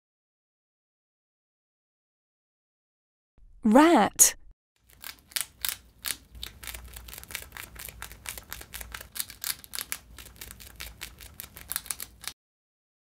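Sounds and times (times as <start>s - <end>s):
rat chewing food: 4.8s - 12.4s.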